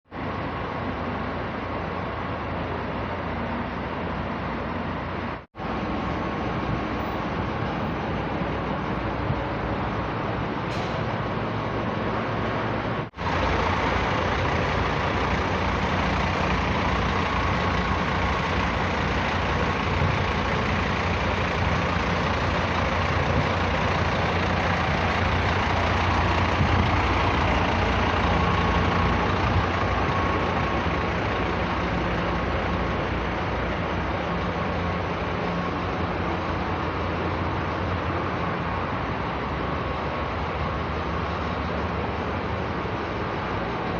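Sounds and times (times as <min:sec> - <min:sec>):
road noise: 0:00.0 - 0:43.9
diesel coach engine humming: 0:00.1 - 0:43.9.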